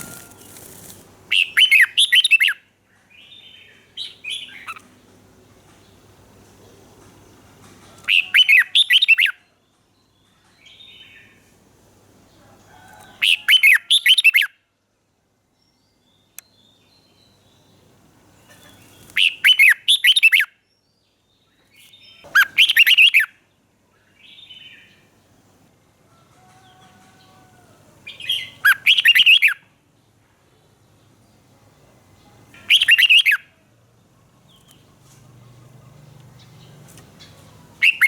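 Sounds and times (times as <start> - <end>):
soft bird calls: 32.2 - 33.6, 34.3 - 38.0
bulbul warbling song: 32.6 - 33.5, 36.4 - 38.0.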